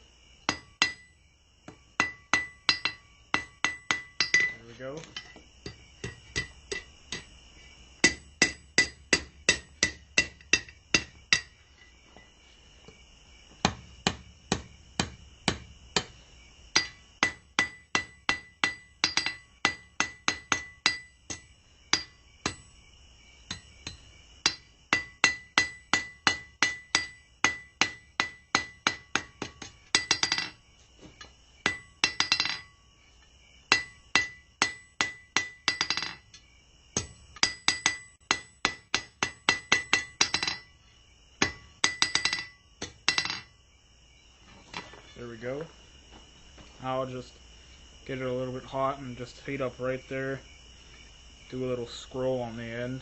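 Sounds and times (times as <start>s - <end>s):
hammer striking steel on anvil: 0.5s - 1.1s, 1.7s - 7.3s, 8.0s - 11.6s, 16.7s - 22.7s, 23.5s - 30.6s, 31.6s - 32.8s, 33.7s - 36.3s, 37.0s - 40.7s, 41.4s - 43.5s.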